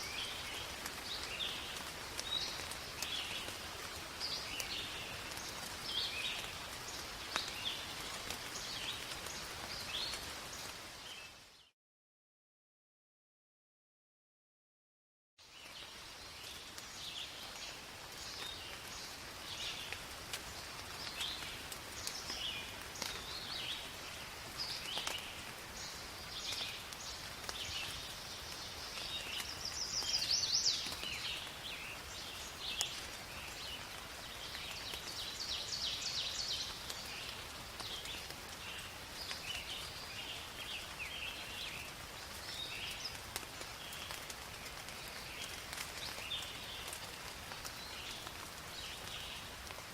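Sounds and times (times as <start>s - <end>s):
rain hiss: 0.0s - 11.7s, 15.4s - 49.9s
songbirds chirping: 0.0s - 11.7s, 15.4s - 49.9s.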